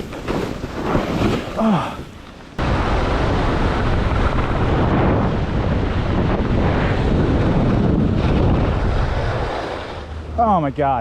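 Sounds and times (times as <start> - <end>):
wind buffeting microphone: 2.6 - 10.4.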